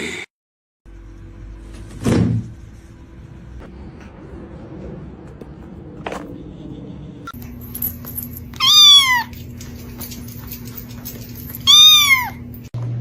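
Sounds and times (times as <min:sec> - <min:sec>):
cat meowing: 0:08.6 - 0:09.5, 0:11.6 - 0:12.5.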